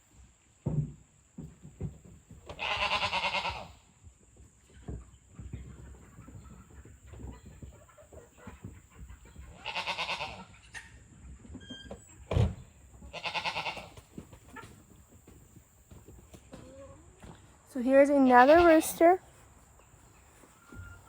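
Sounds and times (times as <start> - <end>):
farm animal calls: 2.5 - 3.8, 6.0 - 11.0, 13.0 - 14.8, 20.0 - 21.0.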